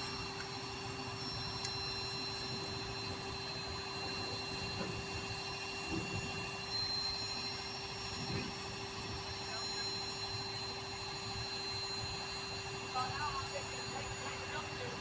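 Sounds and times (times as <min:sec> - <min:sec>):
constant whine: 0:00.0 - 0:15.0.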